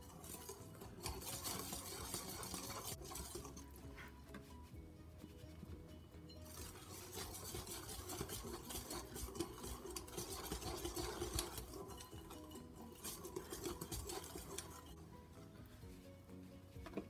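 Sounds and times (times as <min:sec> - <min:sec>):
whisk scraping and clicking on glass: 0:00.0 - 0:04.4, 0:06.2 - 0:15.0.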